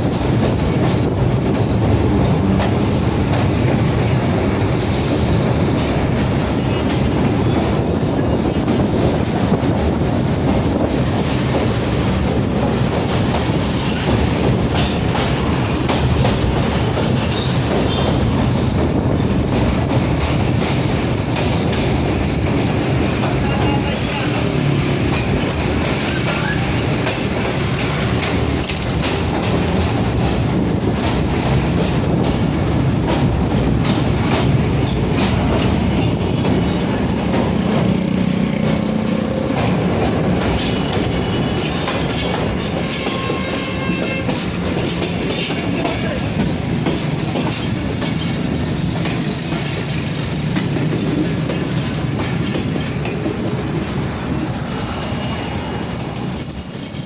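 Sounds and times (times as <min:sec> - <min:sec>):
train rumbling along track: 0:00.0 - 0:57.0
wheels clattering over rail joints: 0:00.0 - 0:57.0
high wheel squeal: 0:26.0 - 0:26.9.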